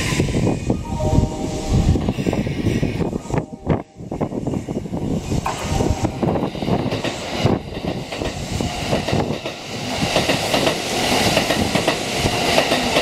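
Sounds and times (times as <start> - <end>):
train wheels clattering: 5.3 - 13.0.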